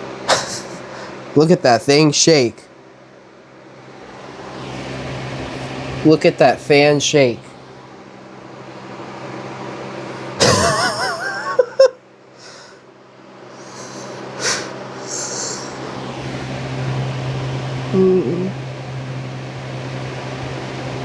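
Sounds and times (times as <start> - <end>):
loud wavering noise: 0.0 - 2.5, 13.4 - 21.0
box fan motor humming: 0.0 - 21.0.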